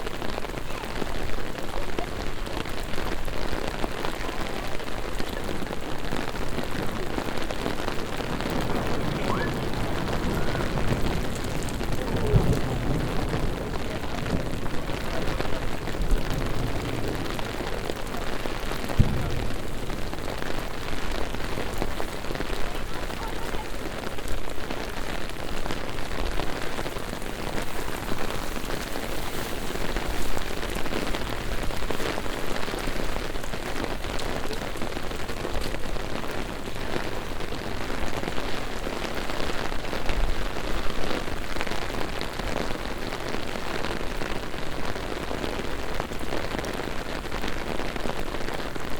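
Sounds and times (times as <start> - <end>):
heavy rain on pavement: 0.0 - 48.9
low thumps: 18.7 - 22.0.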